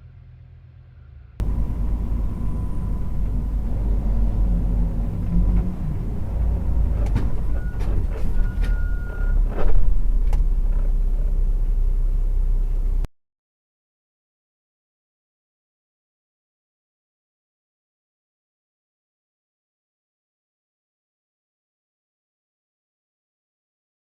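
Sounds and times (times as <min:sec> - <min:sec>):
vehicle engine and road noise: 0:00.0 - 0:13.1.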